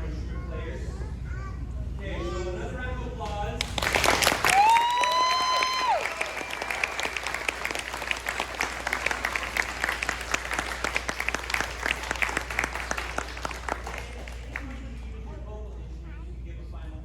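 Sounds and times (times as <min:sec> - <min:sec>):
audience applauding: 0:03.6 - 0:14.8
high whoop of a cheer: 0:04.3 - 0:07.7.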